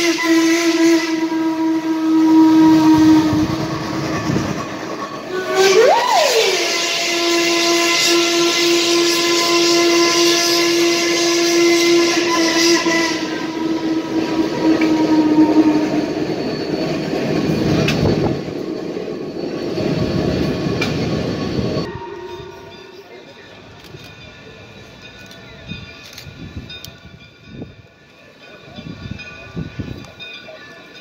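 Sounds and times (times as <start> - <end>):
steam locomotive whistle: 0.0 - 23.2
steam train running: 0.0 - 31.0.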